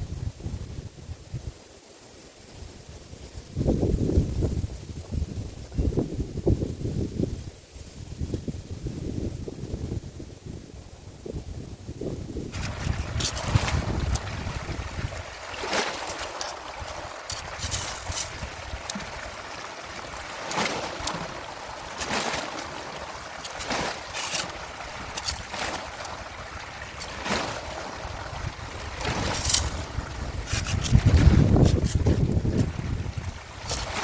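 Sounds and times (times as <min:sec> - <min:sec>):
wind buffeting microphone: 0:03.2 - 0:22.6, 0:23.6 - 0:34.0
rushing water: 0:12.3 - 0:34.0.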